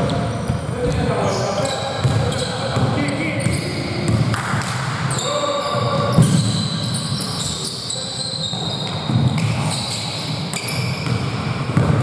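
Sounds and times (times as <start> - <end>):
shoe squeaks: 0.0 - 4.2, 5.1 - 11.9
gym hall noise: 0.0 - 12.0
basketball bouncing on court: 2.0 - 4.8, 10.5 - 12.0.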